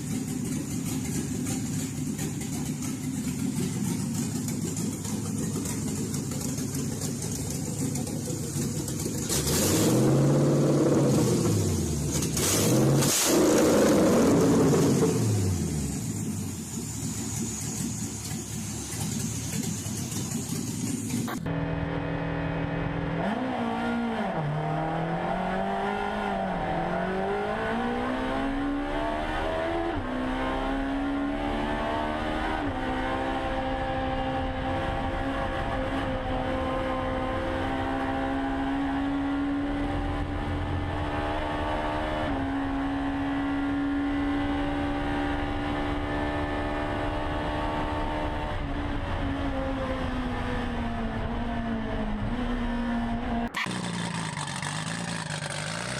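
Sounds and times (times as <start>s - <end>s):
car engine revving and upshifting: 8.0s - 16.0s, 21.3s - 55.9s.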